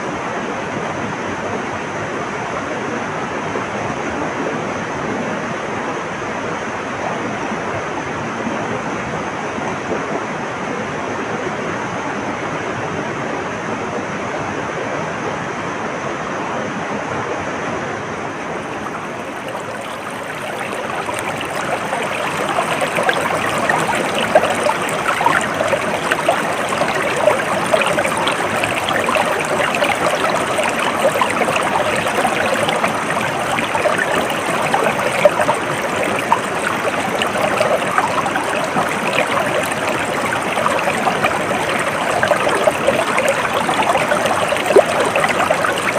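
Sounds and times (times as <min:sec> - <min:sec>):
stream water babbling: 0:18.2 - 0:45.9.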